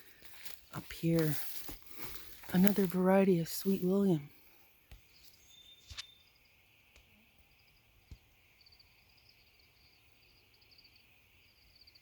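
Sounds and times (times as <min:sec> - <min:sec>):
faint outdoor ambience: 0:00.0 - 0:12.0
high-pitched chirping trills: 0:05.1 - 0:06.4.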